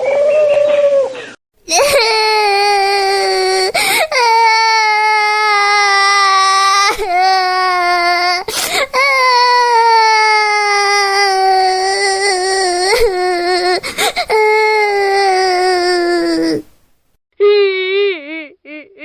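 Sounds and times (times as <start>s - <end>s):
infant crying: 1.7s - 16.6s
gasping in-breaths: 3.7s - 4.2s, 13.8s - 14.3s.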